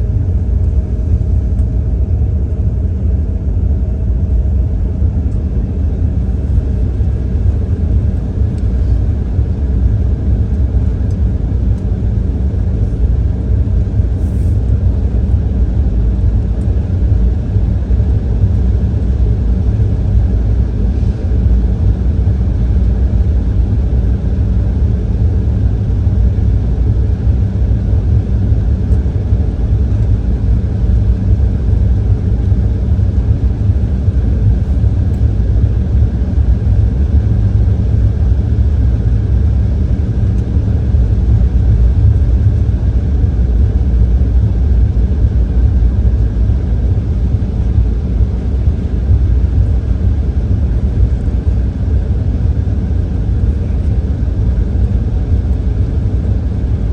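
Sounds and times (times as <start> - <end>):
faint steady hum: 0.0 - 56.9
jet engines rumbling in cabin: 0.0 - 56.9.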